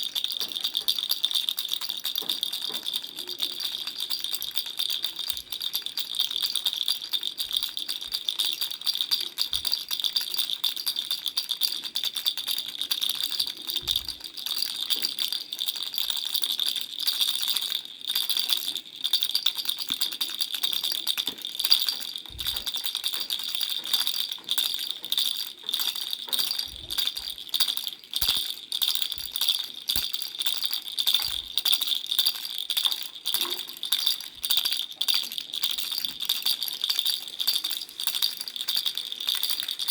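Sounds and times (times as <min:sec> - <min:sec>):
baby rattle shaken: 0:00.0 - 0:39.9.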